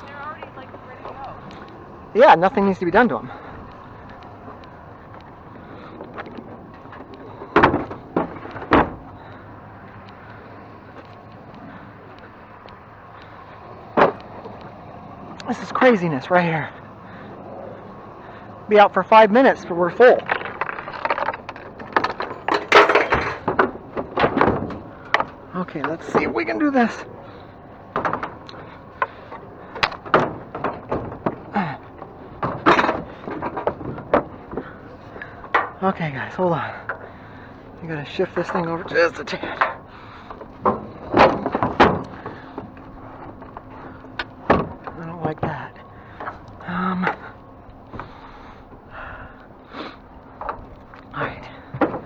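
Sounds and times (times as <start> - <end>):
handling noise: 0.0 - 52.0
loud knocks: 7.5 - 9.4, 20.2 - 26.4.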